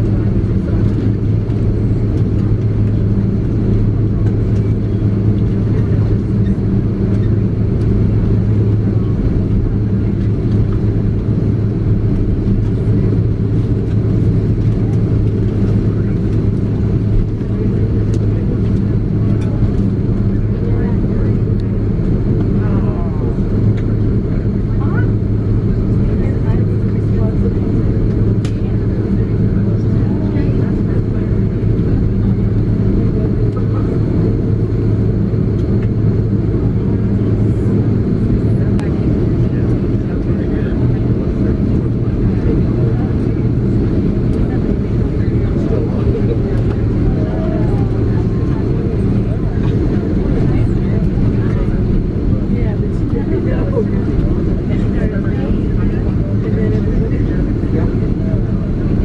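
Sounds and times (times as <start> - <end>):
airplane cabin engine drone: 0.0 - 59.0.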